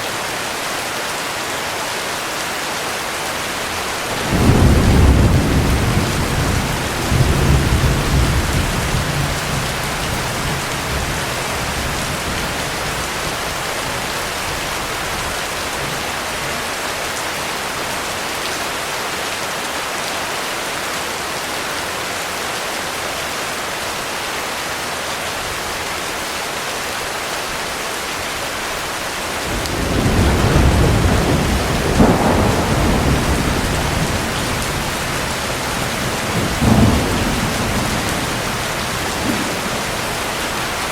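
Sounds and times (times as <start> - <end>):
heavy rain falling: 0.0 - 40.9
thunder rumbling: 3.6 - 16.5, 29.3 - 40.9
sharp thunder crack: 29.5 - 40.6.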